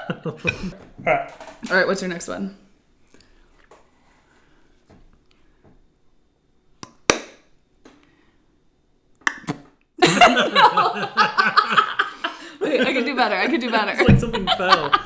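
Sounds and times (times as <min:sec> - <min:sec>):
people laughing: 0:00.0 - 0:00.8, 0:10.0 - 0:15.0
lip clicks: 0:09.2 - 0:09.6
mouth-made wet smack: 0:09.2 - 0:09.7.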